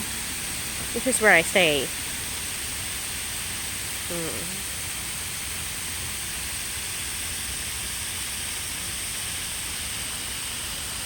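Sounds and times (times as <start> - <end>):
high-pitched whine: 0.0 - 11.0
outdoor background hiss: 0.0 - 11.0.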